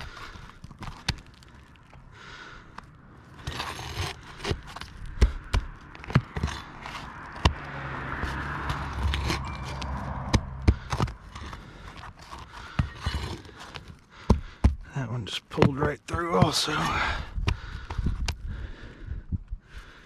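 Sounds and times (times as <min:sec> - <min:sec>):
roofing tool scraping shingles: 0:03.2 - 0:17.1.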